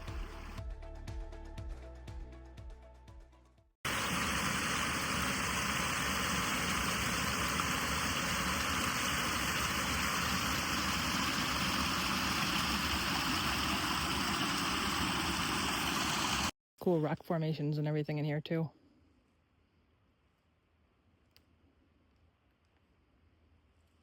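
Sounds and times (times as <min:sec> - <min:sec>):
background music: 0:00.0 - 0:03.6
waterfall rushing: 0:03.9 - 0:16.5.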